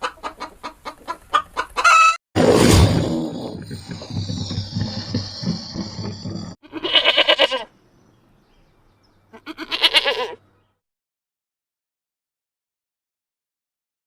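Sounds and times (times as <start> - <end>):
farmyard noise: 0.0 - 2.2, 3.8 - 7.8, 9.1 - 10.7
goat or sheep bleating: 6.6 - 7.7, 9.3 - 10.4.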